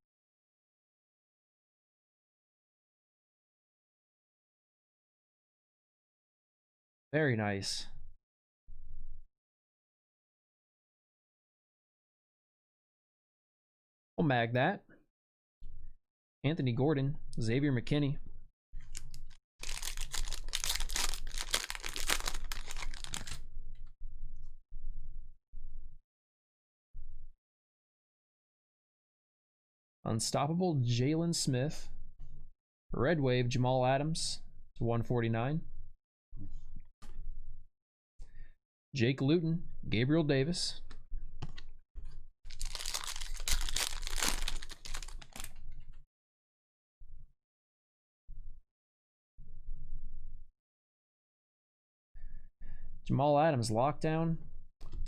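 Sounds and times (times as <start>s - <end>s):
wrapper tearing and crinkling: 18.9s - 23.4s, 42.5s - 45.6s.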